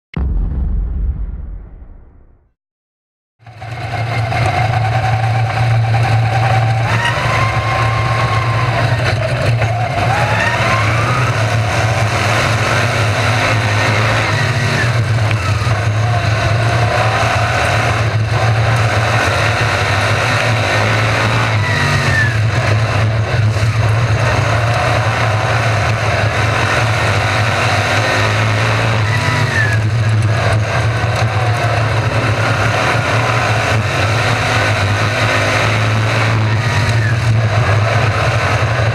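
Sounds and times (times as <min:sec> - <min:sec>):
race car engines passing: 0:03.7 - 0:38.9.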